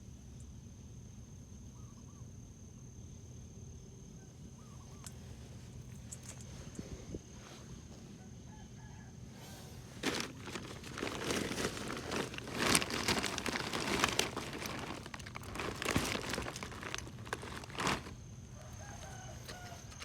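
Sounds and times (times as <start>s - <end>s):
rustling and crinkling: 9.8s - 20.0s.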